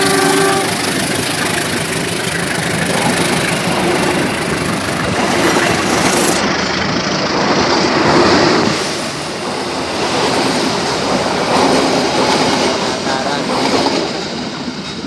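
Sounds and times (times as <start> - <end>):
train wheels rolling on rails: 0.0 - 15.0.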